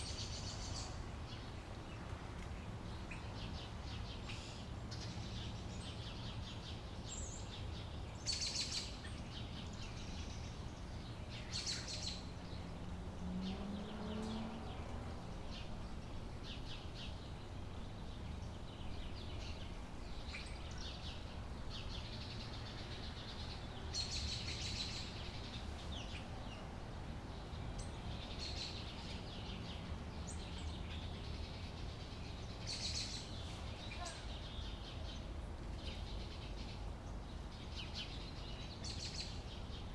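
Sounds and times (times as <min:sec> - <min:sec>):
birds chirping in high trills: 0:00.0 - 0:01.6
low outdoor rumble: 0:00.0 - 0:39.9.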